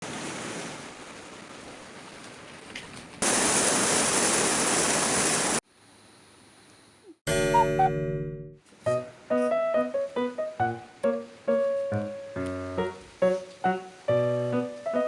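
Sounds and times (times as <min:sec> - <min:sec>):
rain falling: 0:00.0 - 0:05.6, 0:08.7 - 0:15.0.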